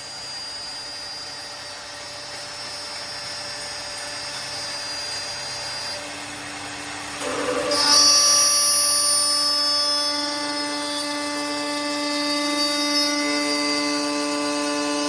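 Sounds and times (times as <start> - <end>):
wood lathe cutting: 7.1 - 15.0.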